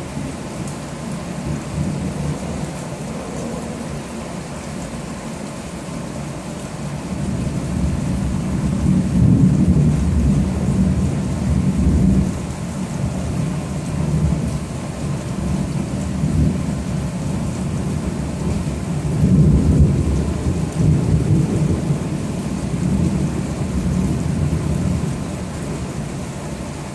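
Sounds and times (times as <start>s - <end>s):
rain hissing: 0.0s - 26.9s
thunder rumbling: 1.1s - 4.6s, 7.2s - 12.5s, 15.4s - 25.9s.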